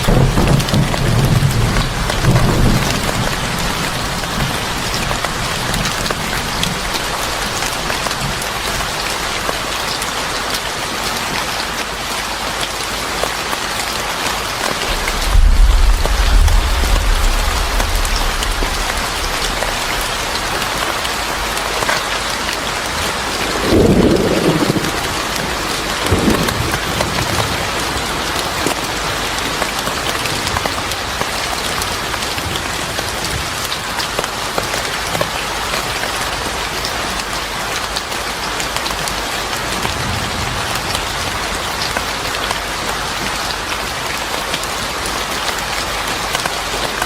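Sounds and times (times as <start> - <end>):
thunder rumbling: 0.0 - 9.4, 14.7 - 28.0
heavy rain hissing: 0.0 - 47.0.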